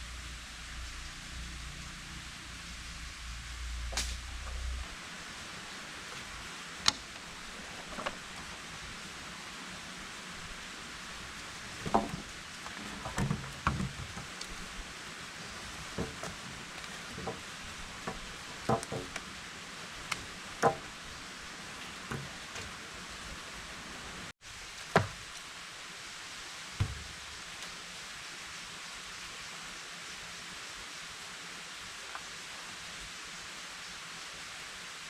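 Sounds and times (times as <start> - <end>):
steady hiss: 0.0 - 35.0
hard objects knocking and clattering: 11.7 - 14.6, 15.5 - 19.3, 20.1 - 20.9.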